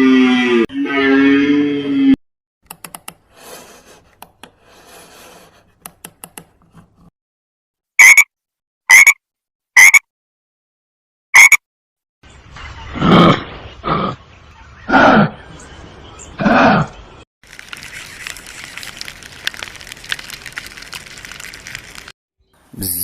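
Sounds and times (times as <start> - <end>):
frog croaking: 8.0 - 8.2, 8.9 - 9.2, 9.8 - 10.0, 11.4 - 11.6.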